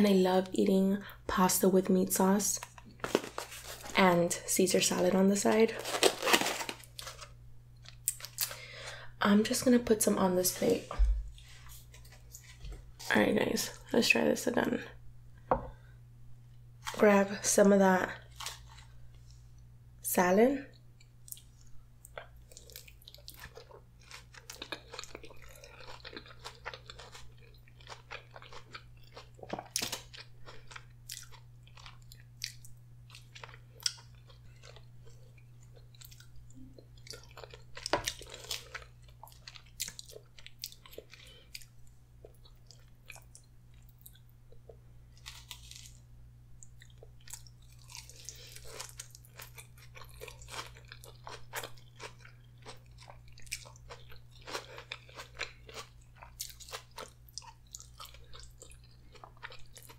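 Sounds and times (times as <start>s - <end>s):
salad crunching: 5.7s - 8.6s, 22.1s - 41.7s, 46.7s - 59.9s
wet chewing of pasta: 21.2s - 59.9s.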